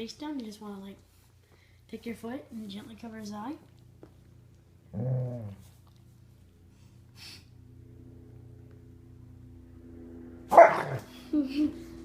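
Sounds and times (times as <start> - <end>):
dog growling low: 4.9 - 5.8.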